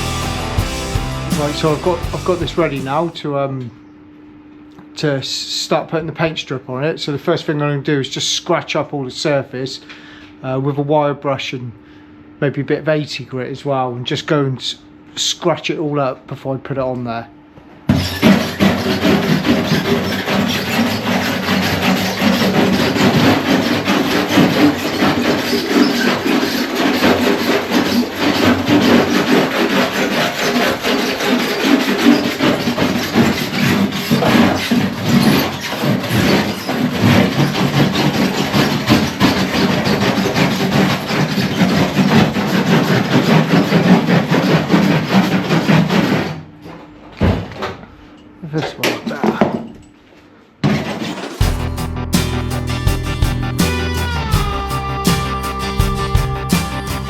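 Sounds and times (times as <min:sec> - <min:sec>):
wire brush scraping metal panel: 0:00.0 - 0:03.1, 0:17.9 - 0:46.4.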